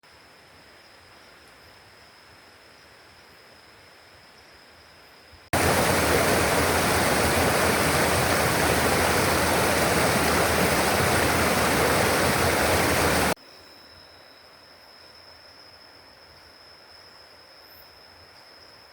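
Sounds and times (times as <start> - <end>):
high insect drone: 0.5 - 18.9
loud rushing water: 5.6 - 13.4.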